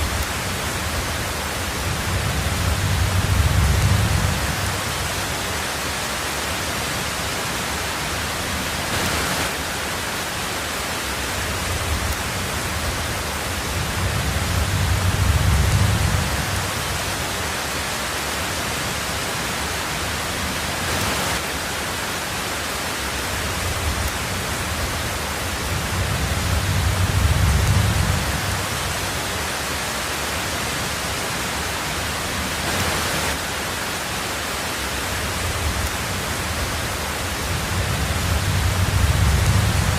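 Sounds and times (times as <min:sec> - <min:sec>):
thunder rumbles: 0:00.0 - 0:05.5, 0:11.5 - 0:17.3, 0:23.5 - 0:29.2, 0:35.3 - 0:39.9
heavy rain on a tin roof: 0:00.0 - 0:39.9.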